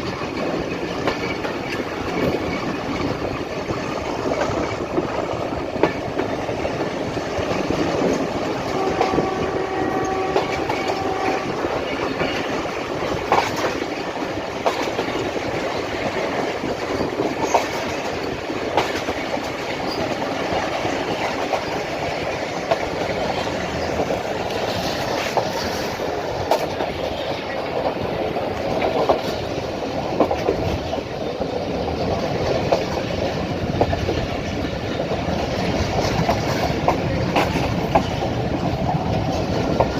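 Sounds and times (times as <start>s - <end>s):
train rumbling along track: 0.0s - 39.9s
wheels clicking over rail joints: 0.0s - 39.9s.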